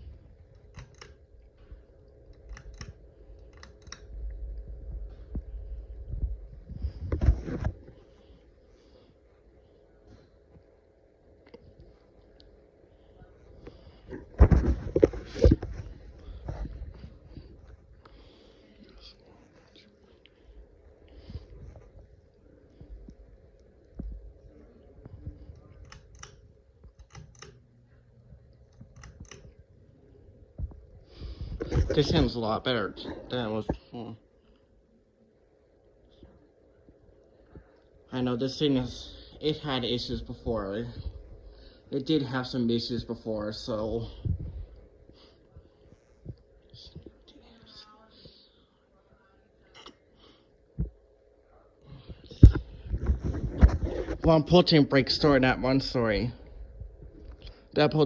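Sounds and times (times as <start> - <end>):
faint steady hum: 0.0 - 58.0
sharp clicks: 0.5 - 1.2, 2.2 - 4.1
low rumble: 4.0 - 8.0.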